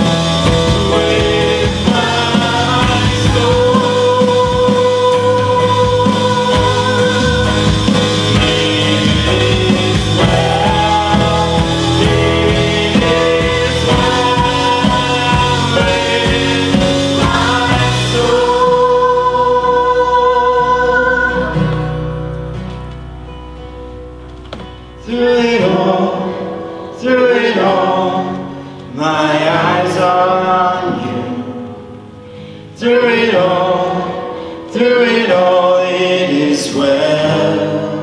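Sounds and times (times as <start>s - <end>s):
drums: 0.0s - 19.9s
person singing: 0.0s - 22.1s, 25.0s - 32.0s, 32.7s - 38.0s
worship band playing: 0.0s - 38.0s.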